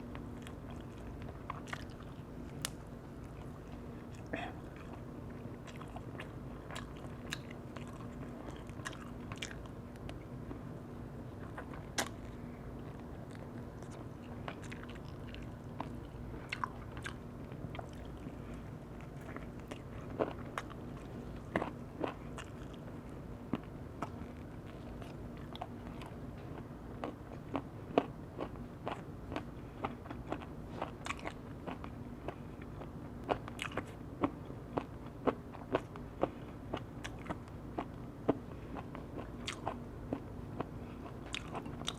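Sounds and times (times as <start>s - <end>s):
person chewing food: 0.1s - 10.6s, 11.3s - 41.9s.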